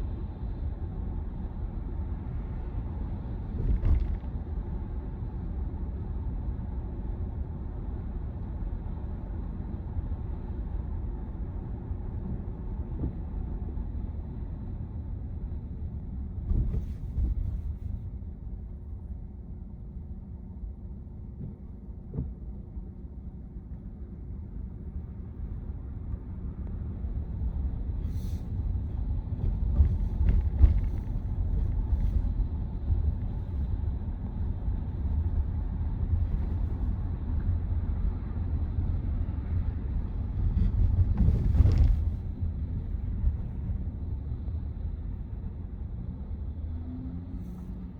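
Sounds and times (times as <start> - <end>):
road and tyre rumble: 0.0 - 47.9
thumps from road bumps: 3.4 - 4.4, 16.4 - 18.1, 28.3 - 34.4, 40.3 - 43.8.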